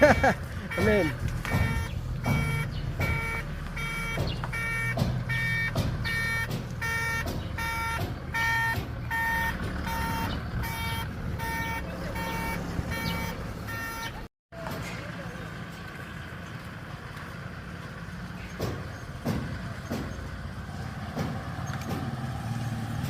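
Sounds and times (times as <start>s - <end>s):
reversing alarm beeping: 0.0s - 14.3s
engine idling: 0.0s - 22.0s.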